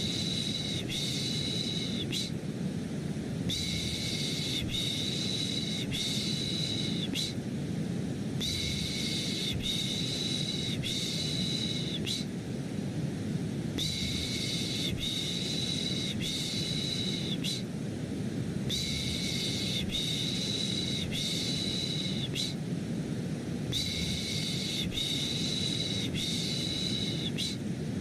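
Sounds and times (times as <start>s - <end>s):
deep white noise hum: 0.0s - 28.0s
person shushing: 3.5s - 7.4s.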